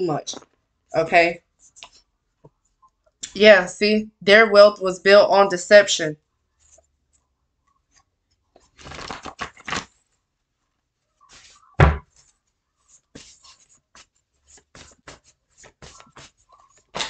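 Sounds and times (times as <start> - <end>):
cards rustling and clicking: 7.9 - 10.1, 13.0 - 17.0
loud thump: 11.8 - 12.0.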